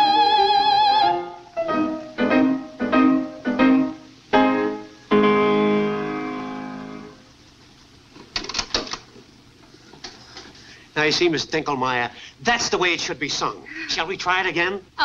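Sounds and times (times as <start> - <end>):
piano chords: 0.0 - 7.3.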